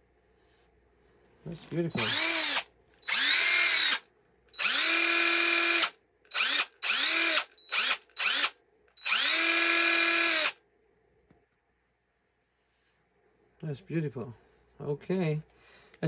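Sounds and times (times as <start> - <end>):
impact driver motor whine: 1.9 - 4.0, 4.6 - 10.6.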